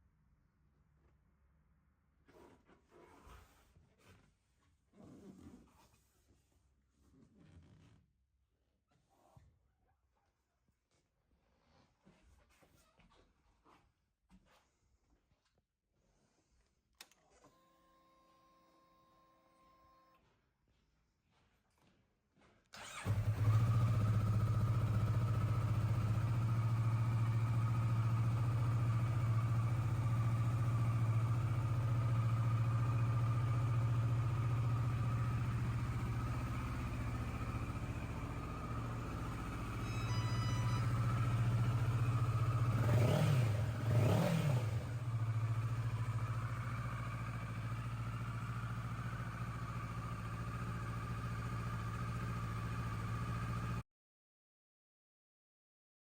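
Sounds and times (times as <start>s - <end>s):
engine revving: 22.8s - 39.8s, 40.6s - 47.7s
motorcycle engine starting and idling: 22.8s - 53.8s.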